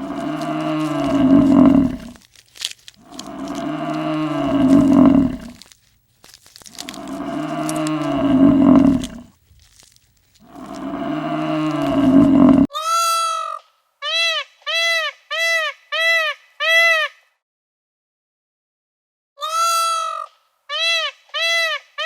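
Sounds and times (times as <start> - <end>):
cow mooing: 0.0 - 2.2, 3.0 - 5.6, 6.8 - 9.3, 10.5 - 12.7
higher-pitched animal calls: 0.0 - 2.2, 3.0 - 5.6, 6.7 - 9.2, 10.5 - 13.0.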